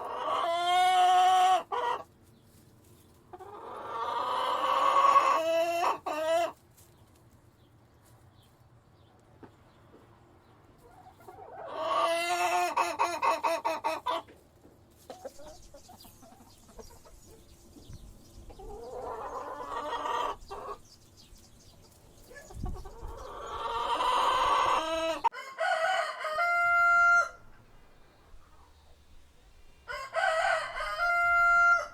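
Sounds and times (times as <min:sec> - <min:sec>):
roosters crowing: 0:00.0 - 0:02.0, 0:22.8 - 0:27.6, 0:29.7 - 0:31.9.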